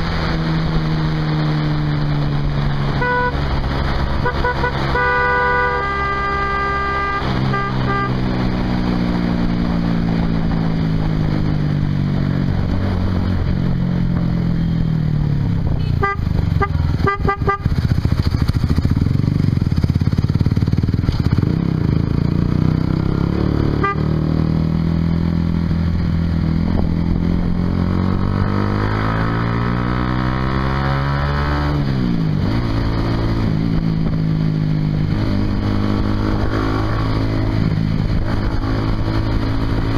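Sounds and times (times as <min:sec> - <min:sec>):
motorcycle engine revving: 0:00.0 - 0:39.9
vehicle horn toot: 0:03.0 - 0:03.5, 0:04.2 - 0:08.4, 0:15.8 - 0:17.8, 0:23.7 - 0:24.3.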